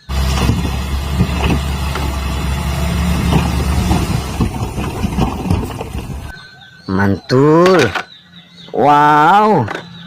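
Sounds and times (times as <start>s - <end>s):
low engine-like rumble: 0.0s - 6.3s.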